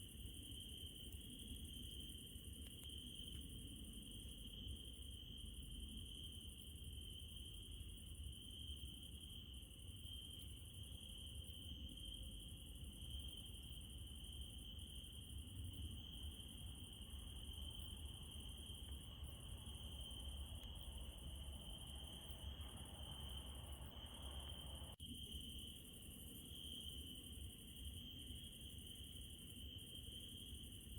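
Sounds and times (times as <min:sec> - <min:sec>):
crickets trilling: 0:00.0 - 0:30.9.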